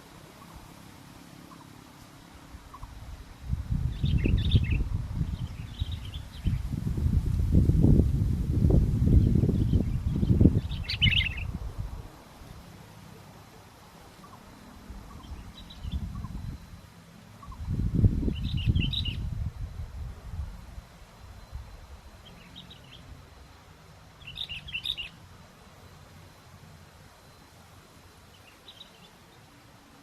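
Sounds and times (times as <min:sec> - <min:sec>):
wind buffeting microphone: 0:02.9 - 0:12.1, 0:14.9 - 0:16.8, 0:17.4 - 0:22.0
bird chirpy call notes: 0:10.2 - 0:11.5, 0:17.4 - 0:19.3, 0:24.2 - 0:25.2.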